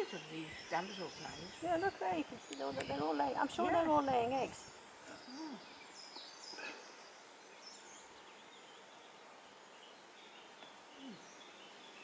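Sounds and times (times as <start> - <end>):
faint high bird chirps: 5.0 - 12.0.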